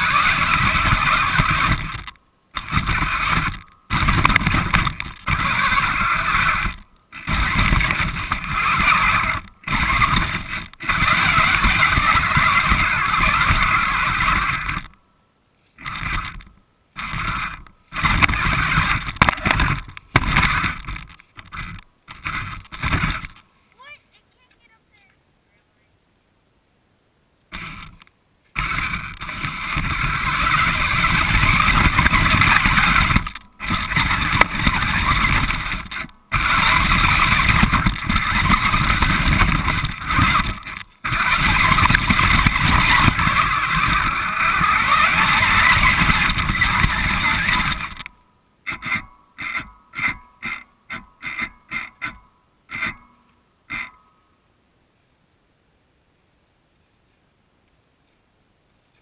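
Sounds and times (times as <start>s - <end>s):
short throttle bursts: 0.0s - 14.9s, 15.8s - 23.4s, 27.5s - 28.0s, 28.6s - 48.1s
radio-controlled car motor: 0.0s - 15.0s, 15.8s - 23.4s, 27.5s - 48.1s, 48.7s - 53.1s.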